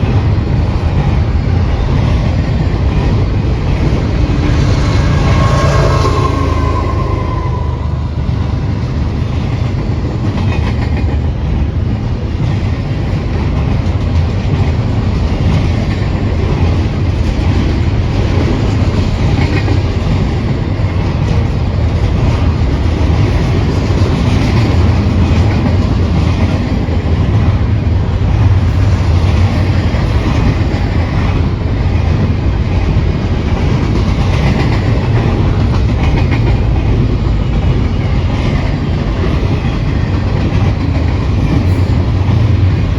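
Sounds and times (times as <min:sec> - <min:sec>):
train wheels rumbling on rail: 0:00.0 - 0:42.9
high wheel squeal: 0:04.0 - 0:08.8.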